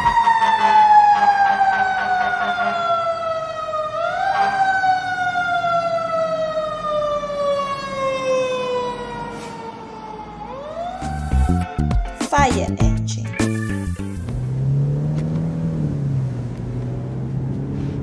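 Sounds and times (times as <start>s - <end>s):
police siren wailing: 0.0s - 11.8s.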